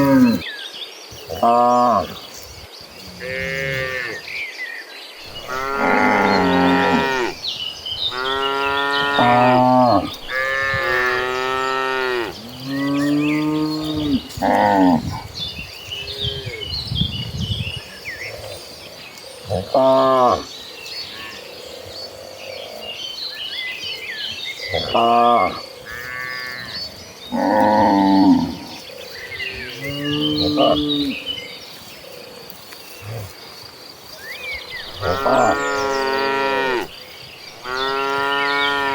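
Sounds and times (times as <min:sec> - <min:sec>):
cattle mooing: 0:05.3 - 0:07.4, 0:08.0 - 0:15.1, 0:34.9 - 0:36.9, 0:37.6 - 0:38.9.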